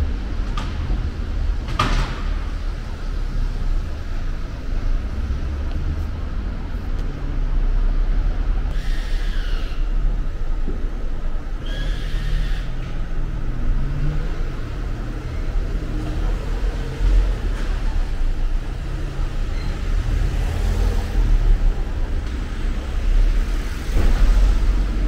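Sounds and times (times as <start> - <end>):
car engines rumbling: 0.0 - 25.0
brief high squeal: 11.6 - 12.7.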